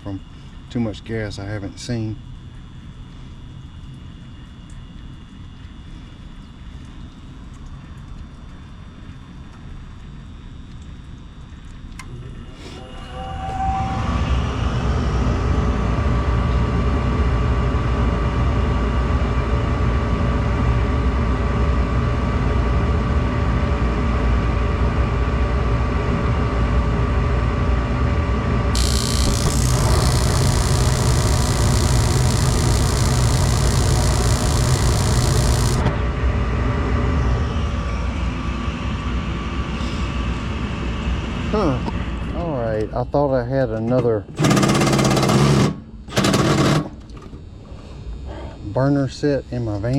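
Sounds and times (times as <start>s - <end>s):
gas furnace rumbling: 24.6s - 36.9s.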